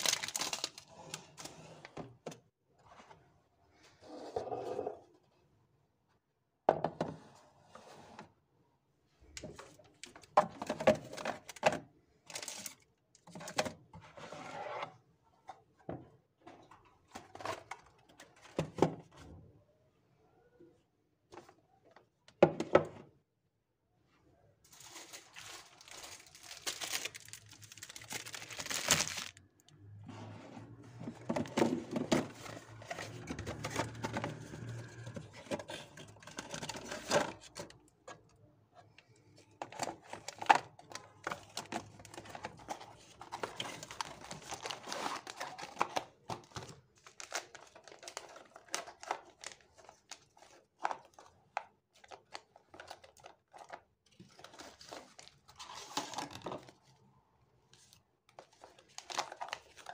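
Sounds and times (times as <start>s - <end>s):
packaging crinkling: 0.0s - 0.8s, 24.7s - 29.5s
items clicking and knocking: 9.4s - 12.6s, 31.0s - 38.4s.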